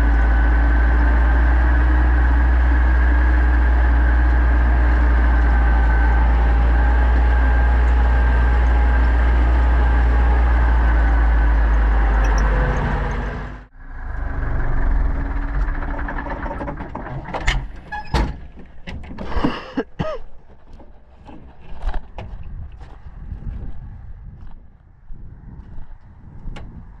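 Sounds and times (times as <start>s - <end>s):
tractor engine droning: 0.0s - 27.0s
knocks and clunks: 14.8s - 23.0s.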